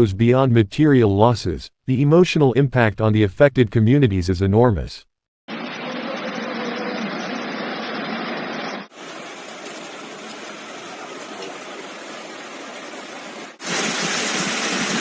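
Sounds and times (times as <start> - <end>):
floodwater rushing: 9.0 - 15.0.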